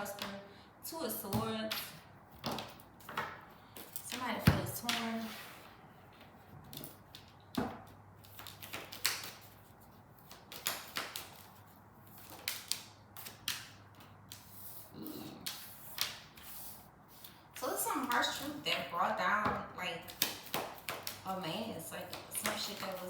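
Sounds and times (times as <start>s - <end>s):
cards being shuffled and flicked: 1.7s - 18.8s, 20.0s - 23.0s.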